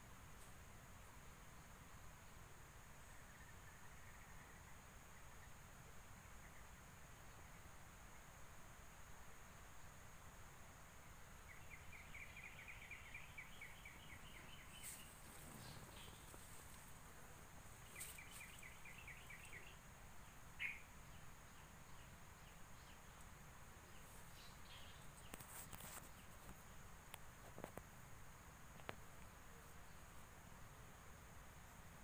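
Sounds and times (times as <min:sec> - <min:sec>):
faint outdoor ambience: 0:00.0 - 0:32.0
small bird chirps: 0:11.4 - 0:16.7, 0:17.8 - 0:19.8, 0:20.6 - 0:23.1.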